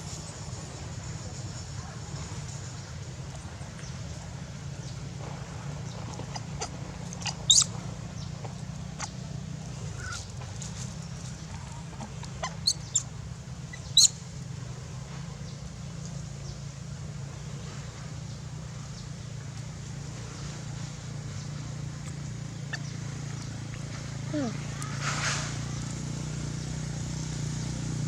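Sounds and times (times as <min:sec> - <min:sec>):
steady low hum: 0:00.0 - 0:28.0
baby monkey squealing: 0:06.3 - 0:07.8, 0:09.9 - 0:10.3, 0:12.3 - 0:13.1, 0:13.7 - 0:14.2.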